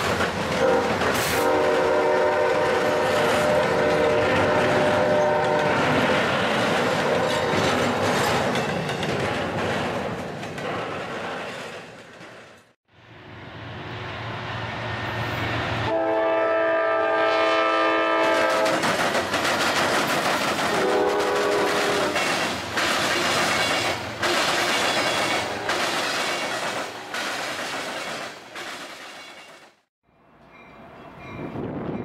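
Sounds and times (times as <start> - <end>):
train rumble: 0.0 - 32.0
locomotive horn: 0.5 - 6.0, 15.8 - 18.8, 20.7 - 22.3, 25.0 - 25.8.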